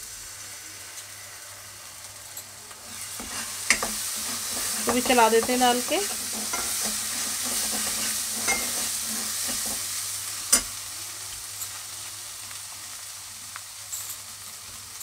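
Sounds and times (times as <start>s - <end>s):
paste sizzling in hot oil: 0.0s - 15.0s
spatula scraping a pan: 2.8s - 10.7s
spatula knocking on pan: 3.2s - 9.9s.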